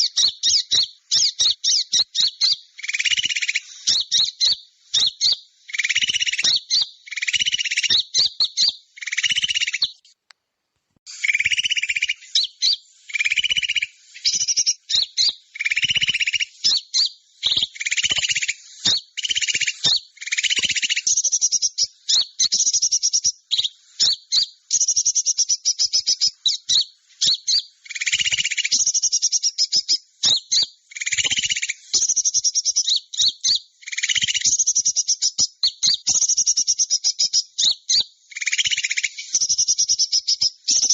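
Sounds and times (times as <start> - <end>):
buzzy bird lure chirping trills: 0.0 - 10.2, 11.1 - 40.9.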